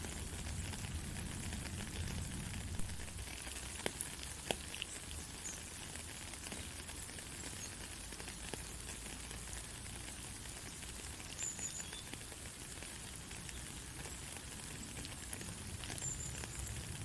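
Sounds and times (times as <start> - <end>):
heavy rain falling: 0.0 - 17.0
raindrops ticking: 0.0 - 17.0.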